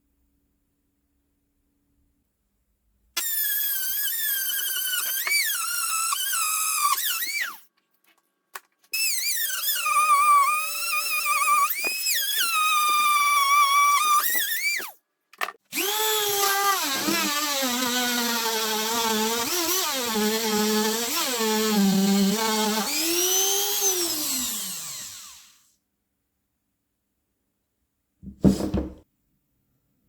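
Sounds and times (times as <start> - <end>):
electric drill motor running: 15.7 - 25.6.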